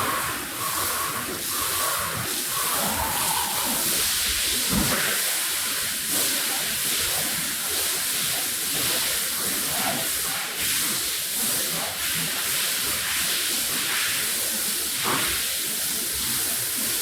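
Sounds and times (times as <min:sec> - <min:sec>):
pressure washer spraying water: 0:00.0 - 0:06.1.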